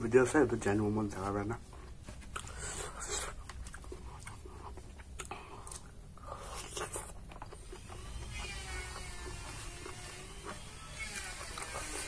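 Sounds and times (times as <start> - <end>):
person chewing food: 1.7 - 10.7.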